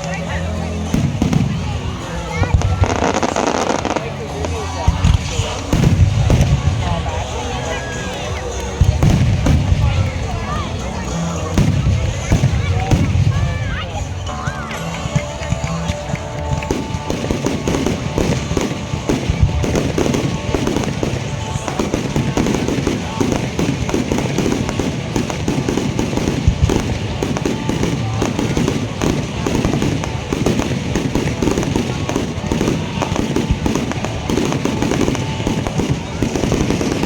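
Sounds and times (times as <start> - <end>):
fireworks bangs and crackles: 0.0 - 37.0.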